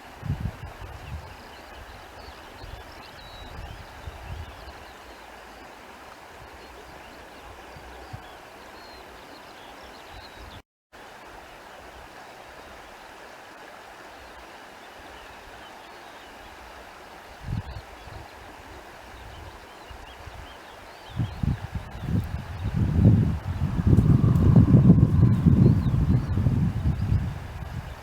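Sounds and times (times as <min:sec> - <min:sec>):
wind rumble on microphone: 0:00.0 - 0:04.9, 0:17.3 - 0:28.0
running water: 0:00.0 - 0:28.0.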